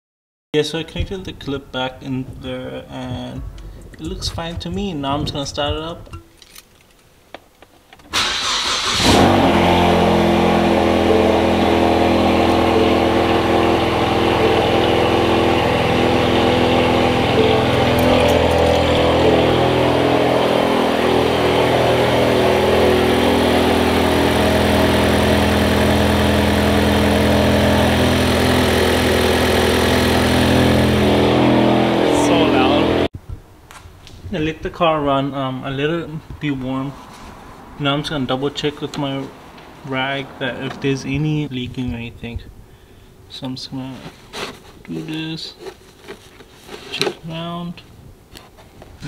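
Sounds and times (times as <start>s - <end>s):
engine cranking: 8.1s - 9.5s, 12.2s - 20.2s
car engine idling: 8.2s - 33.1s.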